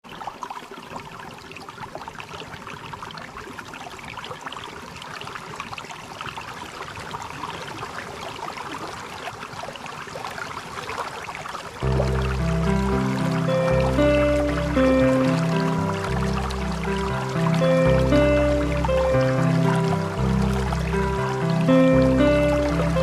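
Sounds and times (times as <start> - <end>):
waterfall rushing: 11.8 - 23.0.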